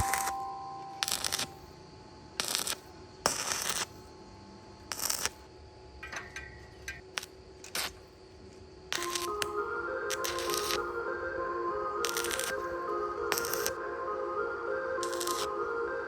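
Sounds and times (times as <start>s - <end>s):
metallic clinks and scrapes: 6.0s - 8.0s.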